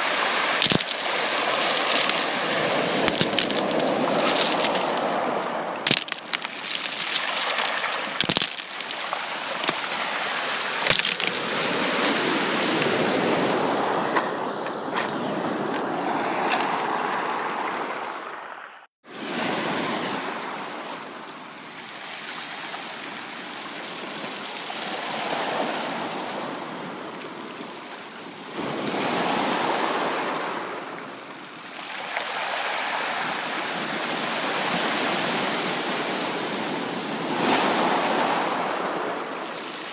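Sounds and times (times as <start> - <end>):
sea waves breaking on beach: 0.0 - 20.8, 21.8 - 39.9
sharp crackles: 0.6 - 9.9, 10.8 - 11.5.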